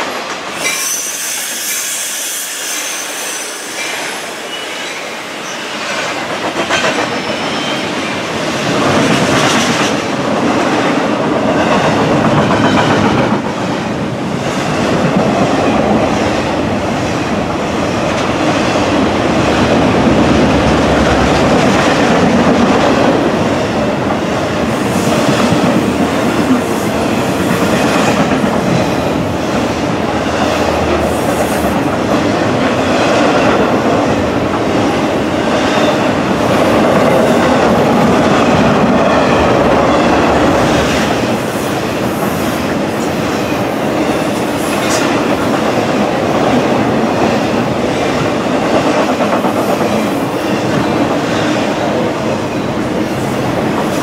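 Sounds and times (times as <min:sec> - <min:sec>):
train wheels clattering over rails: 0:05.7 - 0:54.0.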